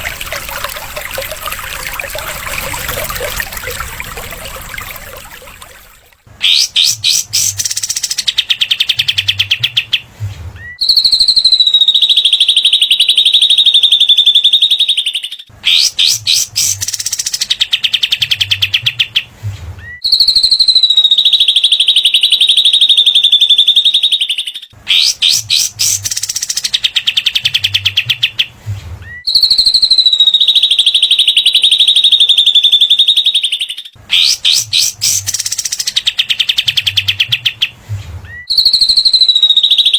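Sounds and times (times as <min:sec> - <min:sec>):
songbird stuttering chatter: 0:06.4 - 0:08.3, 0:34.1 - 0:36.0.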